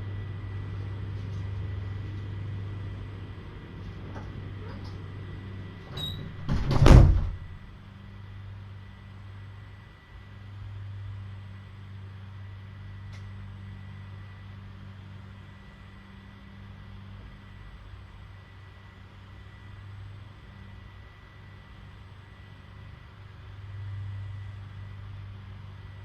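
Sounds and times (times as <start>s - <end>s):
steady low hum: 0.0s - 26.0s
door shutting: 5.8s - 7.6s.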